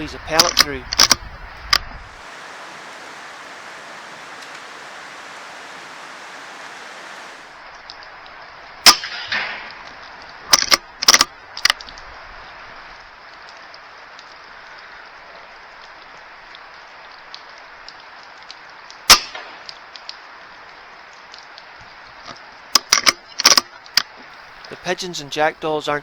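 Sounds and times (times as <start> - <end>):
rifle clicks and knocks: 0.4 - 1.9, 10.5 - 12.0, 22.3 - 24.3
air rifle shots: 8.8 - 9.8, 10.5 - 11.3, 19.1 - 19.7.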